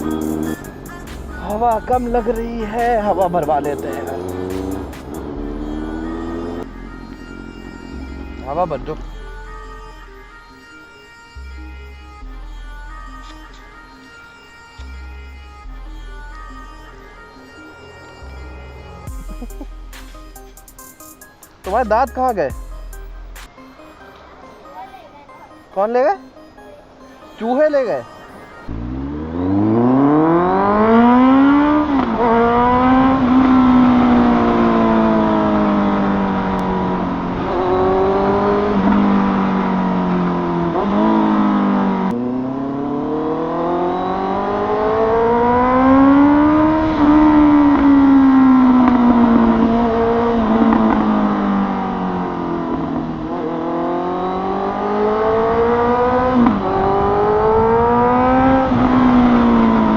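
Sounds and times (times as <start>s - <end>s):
motorcycle accelerating through gears: 3.3s - 8.7s, 28.7s - 59.9s.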